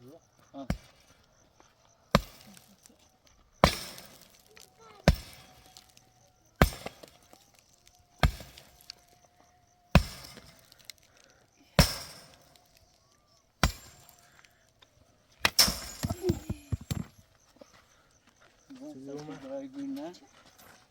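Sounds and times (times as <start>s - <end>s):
hammer striking brick: 2.1s - 2.7s, 3.6s - 6.0s, 6.6s - 7.5s, 8.2s - 9.0s, 9.9s - 11.1s, 11.8s - 12.6s, 13.6s - 14.4s, 15.4s - 17.1s.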